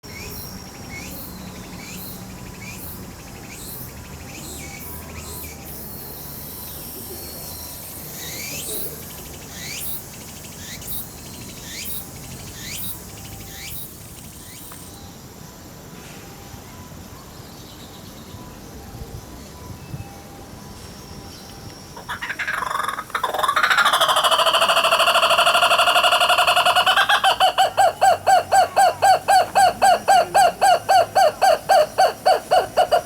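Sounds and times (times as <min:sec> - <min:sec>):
kookaburra calling: 0:22.0 - 0:33.0.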